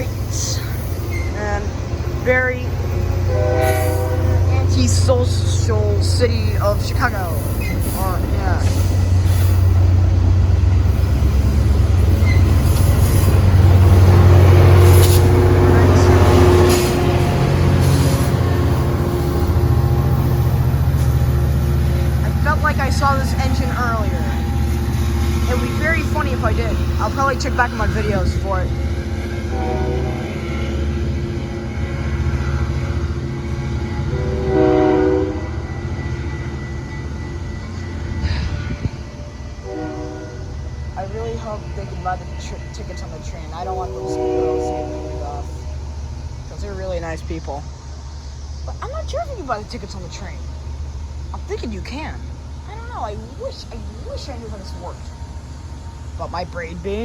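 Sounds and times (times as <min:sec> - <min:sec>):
train rumbling: 0:00.0 - 0:57.0
steady high tone: 0:13.3 - 0:45.8.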